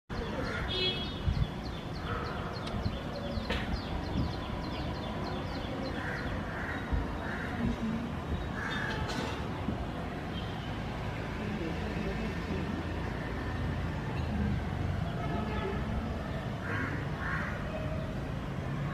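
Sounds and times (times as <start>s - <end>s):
harsh bird calls: 0.1s - 9.2s
birds chirping: 0.1s - 18.2s.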